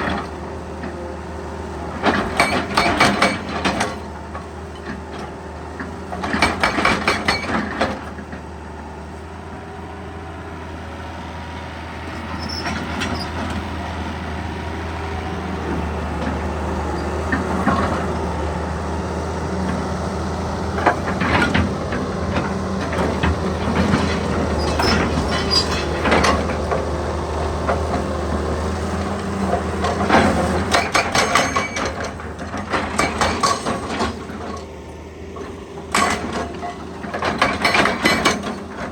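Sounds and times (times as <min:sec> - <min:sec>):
diesel engine running: 0:00.0 - 0:38.9
hydraulic hammer clattering: 0:29.8 - 0:34.5.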